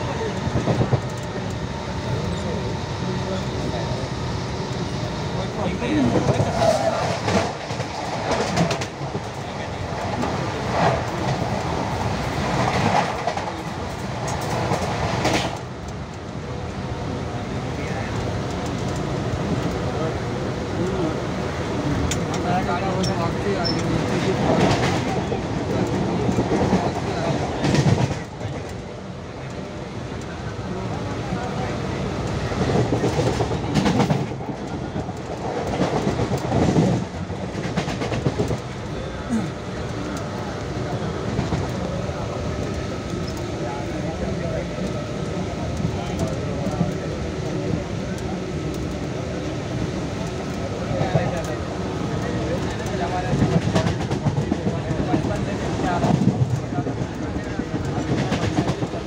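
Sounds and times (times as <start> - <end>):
train wheels rumbling on rails: 0.0 - 59.0
train wheel clacks: 32.3 - 38.9, 52.2 - 59.0.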